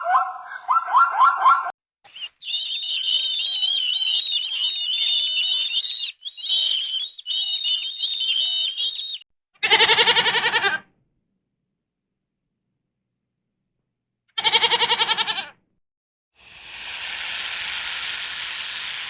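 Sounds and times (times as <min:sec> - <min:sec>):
warbling birdsong: 0:02.1 - 0:09.2, 0:16.4 - 0:19.0
goat bleating: 0:09.6 - 0:10.8, 0:14.4 - 0:15.5.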